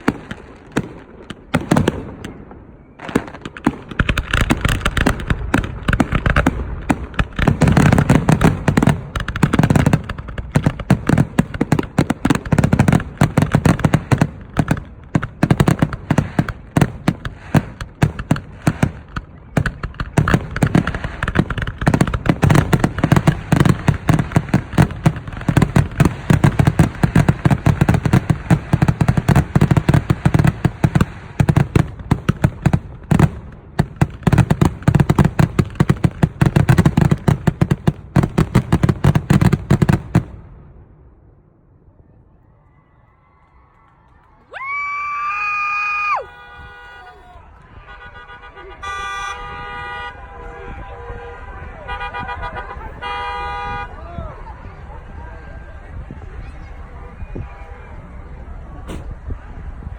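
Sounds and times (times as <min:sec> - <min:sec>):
fireworks bursting: 0:00.0 - 0:41.2.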